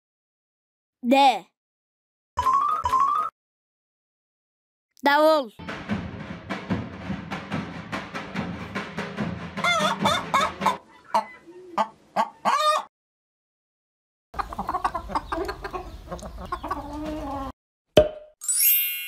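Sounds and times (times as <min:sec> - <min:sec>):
drum beaten in quick rhythm: 0:05.6 - 0:10.8
hens clucking: 0:09.6 - 0:12.9, 0:14.4 - 0:17.5.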